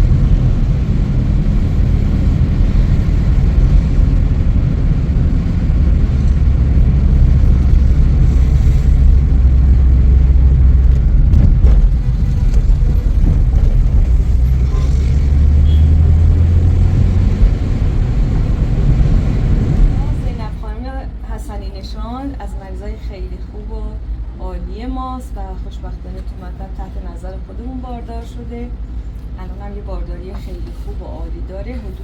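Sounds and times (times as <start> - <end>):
car engine and road rumble: 0.0 - 21.2.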